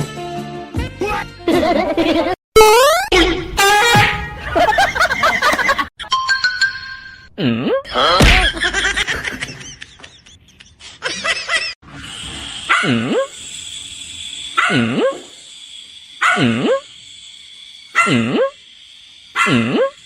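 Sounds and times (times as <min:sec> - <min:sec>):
dog barking: 0:12.7 - 0:13.3, 0:14.6 - 0:15.2, 0:16.2 - 0:16.8, 0:18.0 - 0:18.4, 0:19.4 - 0:19.9.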